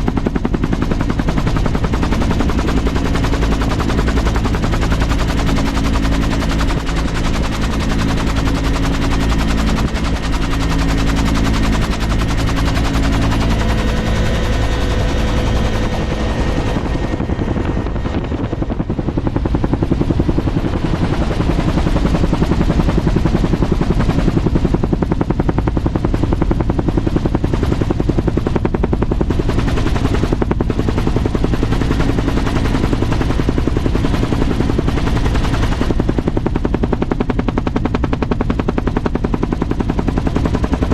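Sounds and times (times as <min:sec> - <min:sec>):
low drone: 0:00.0 - 0:26.9
aircraft engine pulsing: 0:00.0 - 0:40.9.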